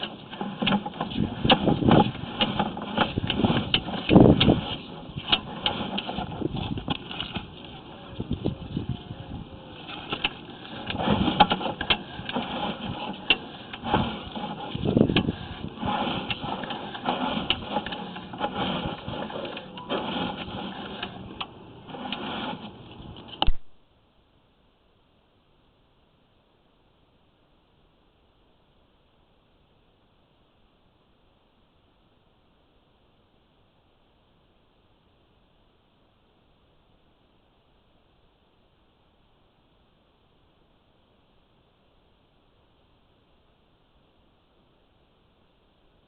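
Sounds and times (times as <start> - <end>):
cable clicking and scraping in pipe: 0.0 - 23.6.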